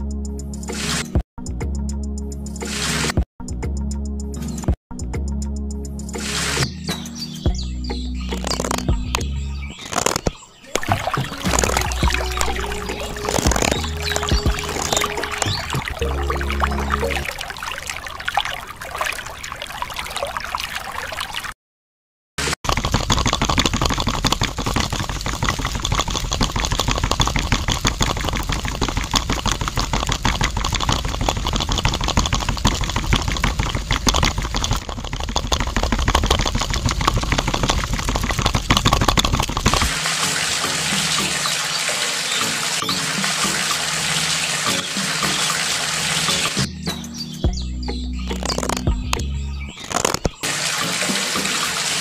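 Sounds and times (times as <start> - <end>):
wet concrete sloshing and rattling: 9.7 - 20.4, 22.7 - 46.7
concrete mixer running: 22.7 - 41.5.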